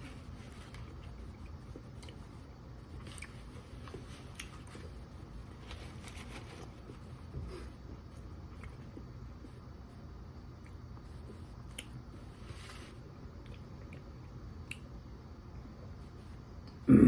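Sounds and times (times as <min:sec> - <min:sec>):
person chewing food: 0:00.5 - 0:05.1, 0:07.9 - 0:09.5.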